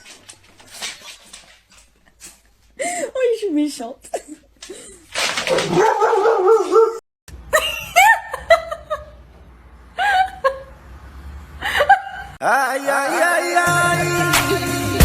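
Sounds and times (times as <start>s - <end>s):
dog yipping: 5.5s - 7.0s.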